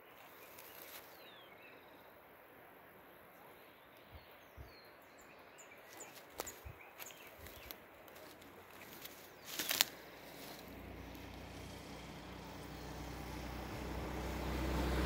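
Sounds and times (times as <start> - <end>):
distant bird chirps: 3.4 - 15.0.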